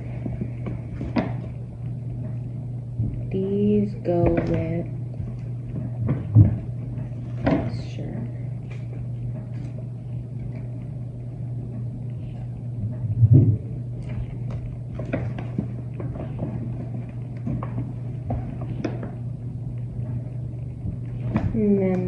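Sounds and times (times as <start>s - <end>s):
steady low hum: 0.0s - 22.0s
low thump: 13.1s - 13.7s.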